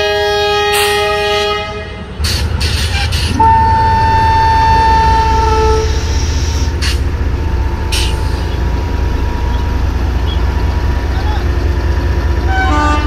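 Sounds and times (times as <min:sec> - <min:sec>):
model train horn: 0:00.0 - 0:02.1, 0:03.3 - 0:06.2, 0:12.5 - 0:13.0
low running hum: 0:03.3 - 0:13.0.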